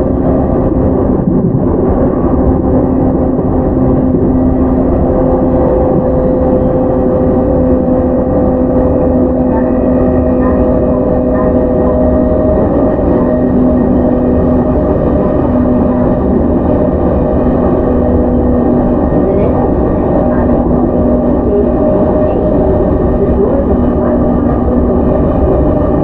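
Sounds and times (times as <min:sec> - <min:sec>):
running gear hum: 0:00.0 - 0:26.0
wheel on rail rumble: 0:00.0 - 0:26.0.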